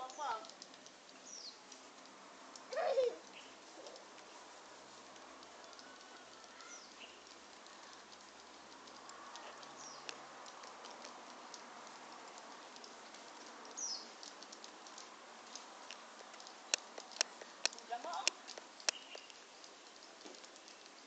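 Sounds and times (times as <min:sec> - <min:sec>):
light ticks: 0:00.0 - 0:21.0
steady hiss: 0:00.0 - 0:21.0
swallows chirping: 0:13.6 - 0:14.2, 0:18.0 - 0:19.6.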